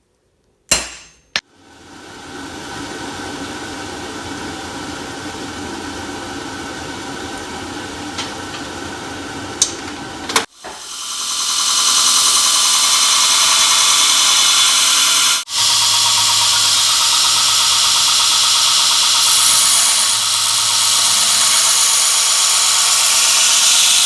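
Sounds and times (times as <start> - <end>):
higher-pitched machine sound: 10.6 - 24.0
electric motor spinning: 10.7 - 24.0.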